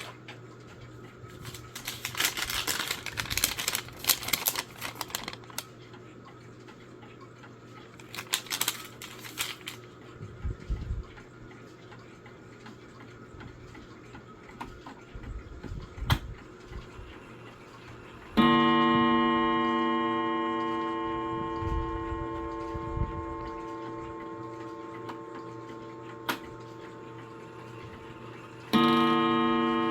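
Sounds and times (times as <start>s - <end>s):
clock gong striking: 18.4s - 29.9s.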